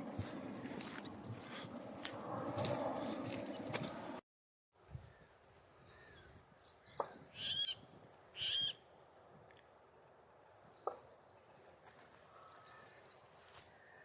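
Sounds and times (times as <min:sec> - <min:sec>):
bird calls: 0:05.1 - 0:08.8.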